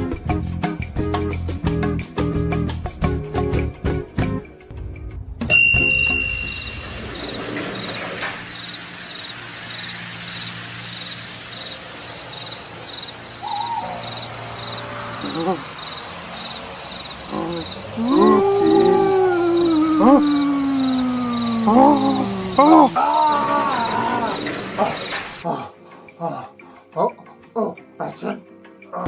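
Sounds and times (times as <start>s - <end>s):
music: 0.0s - 15.6s, 17.4s - 29.0s
bright bell-like ding: 5.5s - 7.4s
crickets chirping: 5.8s - 25.4s
owl hooting: 10.9s - 25.4s
short animal calls: 13.4s - 16.1s.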